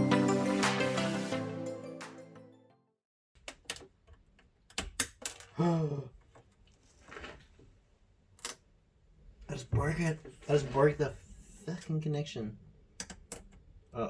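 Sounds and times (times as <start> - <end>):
background music: 0.0 - 3.0.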